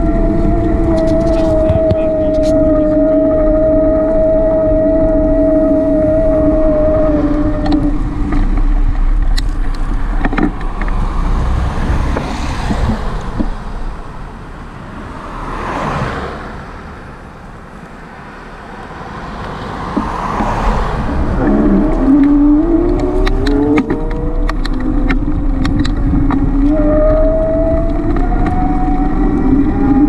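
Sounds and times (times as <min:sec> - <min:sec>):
road traffic: 0:00.0 - 0:30.0
vehicle passing: 0:00.0 - 0:30.0
wind rumbling on microphone: 0:00.0 - 0:30.0.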